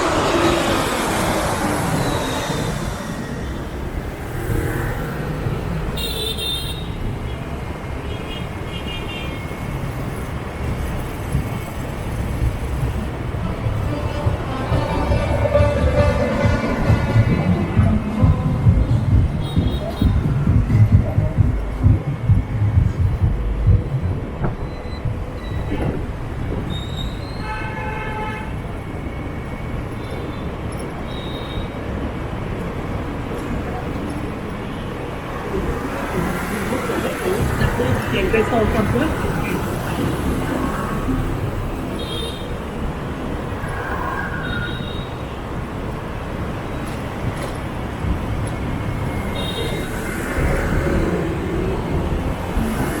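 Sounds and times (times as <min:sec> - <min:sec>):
motorbike engines rumbling: 0:00.0 - 0:08.0, 0:09.6 - 0:27.4, 0:31.8 - 0:42.0, 0:45.4 - 0:53.0
horn sounding: 0:13.4 - 0:21.8.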